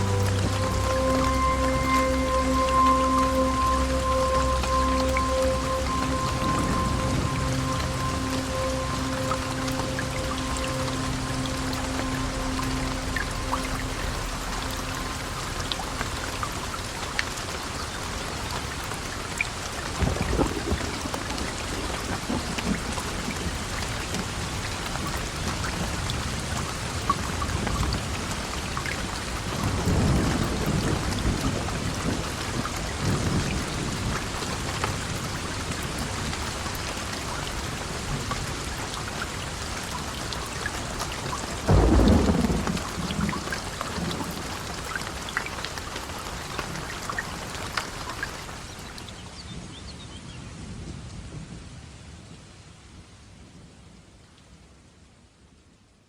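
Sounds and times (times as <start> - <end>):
thunder rumbling: 0.0 - 18.8, 19.9 - 24.5, 41.2 - 45.2
heavy rain: 0.0 - 55.4.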